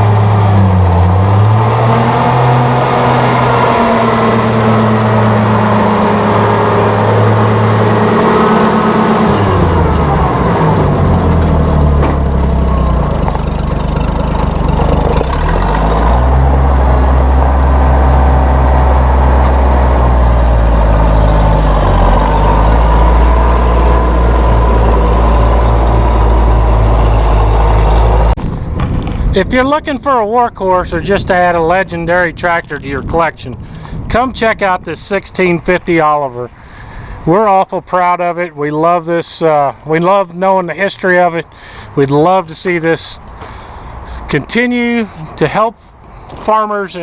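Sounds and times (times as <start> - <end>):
tractor engine running: 0.0 - 29.6.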